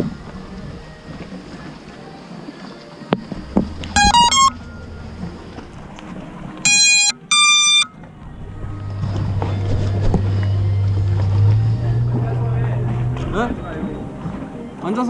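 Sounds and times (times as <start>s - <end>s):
steady low hum: 0.0s - 2.2s, 3.2s - 14.8s
drone motor start-up tune: 3.3s - 13.5s
electronic beeps: 3.5s - 5.8s, 6.6s - 8.0s.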